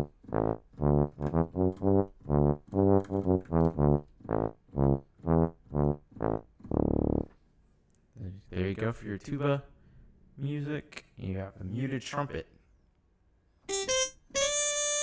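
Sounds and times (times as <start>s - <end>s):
sampled tuba notes: 0.0s - 7.4s, 13.7s - 15.0s.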